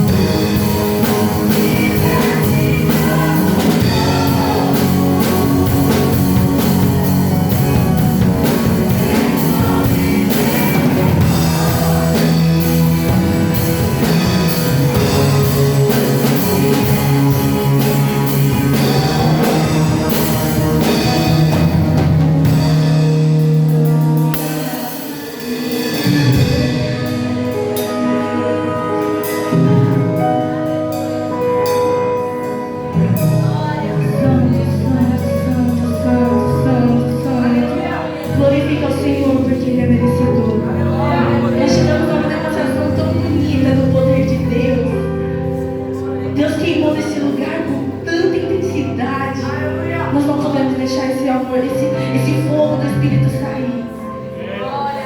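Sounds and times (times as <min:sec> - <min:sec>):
person singing: 0:00.0 - 0:30.7
drum kit: 0:00.0 - 0:45.8
guitar: 0:00.0 - 0:55.0.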